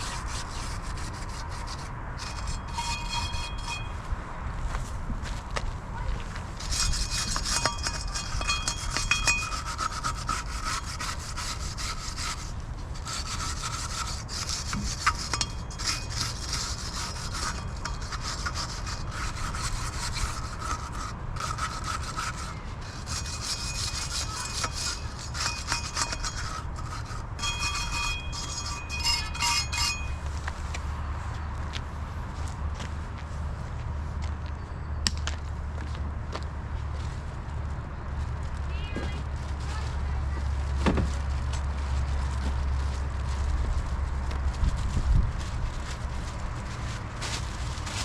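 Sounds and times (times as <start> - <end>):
abrasive scrubbing metal: 0.0 - 4.0, 6.6 - 30.2.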